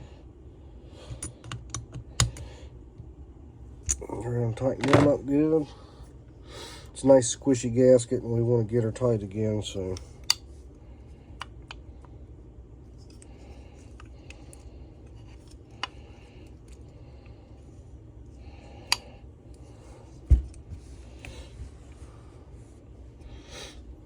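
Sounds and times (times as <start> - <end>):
dull thump: 20.3 - 20.8.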